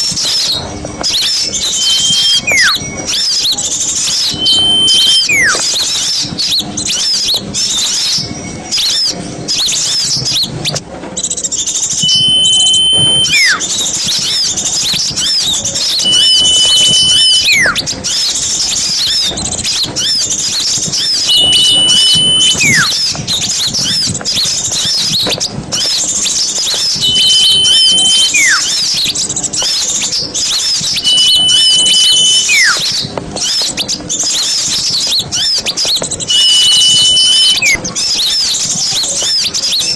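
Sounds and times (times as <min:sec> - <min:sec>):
whistled bird call: 0:00.2 - 0:08.2, 0:11.6 - 0:39.9
songbirds chattering: 0:01.2 - 0:02.8, 0:15.6 - 0:22.9.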